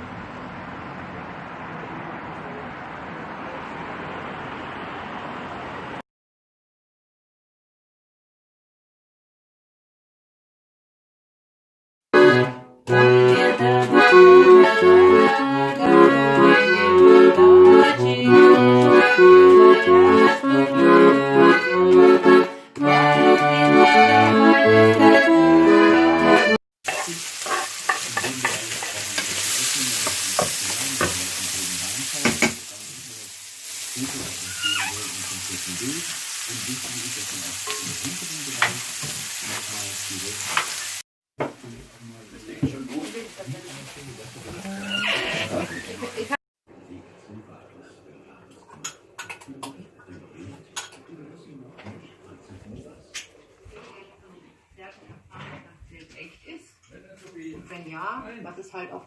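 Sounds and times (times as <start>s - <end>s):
accordion playing lively tune: 12.2s - 26.6s
steady hiss: 26.9s - 41.0s.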